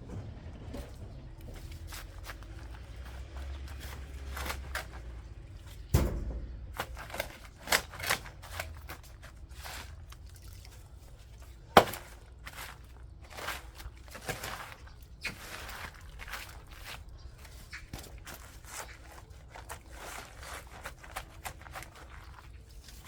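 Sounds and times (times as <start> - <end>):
garden tool scraping soil: 0.8 - 5.9, 6.8 - 23.0.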